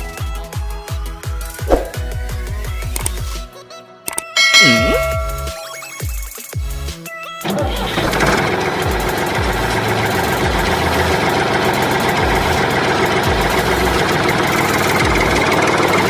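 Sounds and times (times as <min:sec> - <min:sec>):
engine idling: 0:07.5 - 0:16.0.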